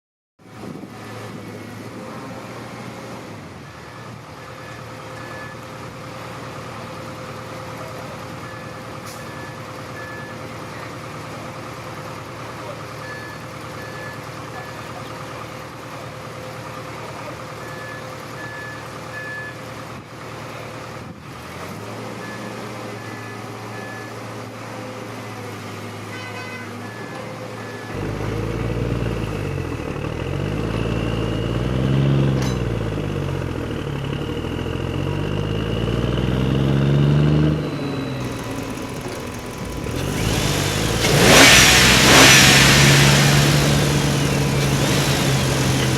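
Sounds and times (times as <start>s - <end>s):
high reversing beeps: 3.7s - 5.7s, 8.4s - 10.5s, 13.0s - 15.0s, 17.6s - 19.6s, 26.9s - 28.2s, 29.0s - 32.2s, 37.5s - 45.7s
electric motor and gear whine: 37.6s - 45.9s.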